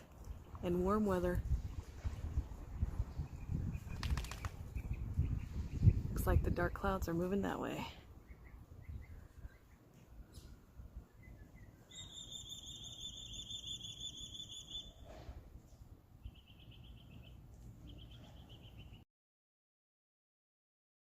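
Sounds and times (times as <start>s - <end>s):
bird singing buzzy trill: 8.2s - 15.1s, 16.2s - 19.0s.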